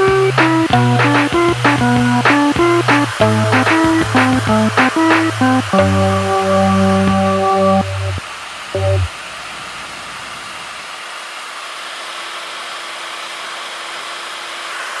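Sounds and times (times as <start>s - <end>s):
short snatch of music: 0.0s - 6.0s.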